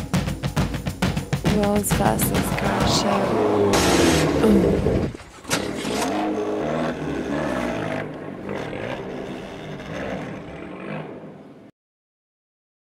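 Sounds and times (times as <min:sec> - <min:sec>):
car engine revving: 0:01.5 - 0:11.7.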